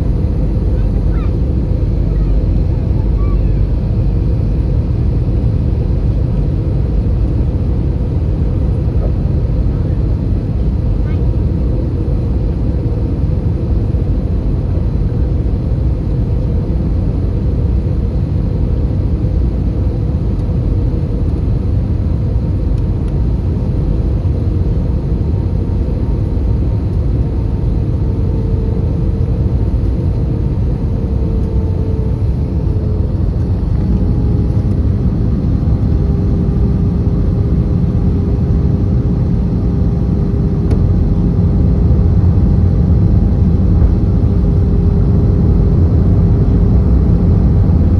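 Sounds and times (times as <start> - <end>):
faint engine tone: 0.0 - 13.1
aircraft cabin engine rumble: 0.0 - 47.9.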